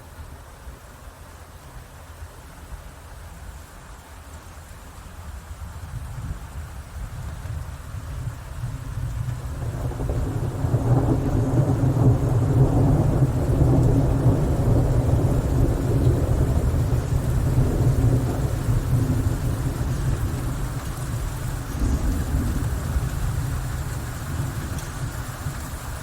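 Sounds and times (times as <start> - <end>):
rain falling: 0.0 - 26.0
thunder rumbling: 7.8 - 26.0.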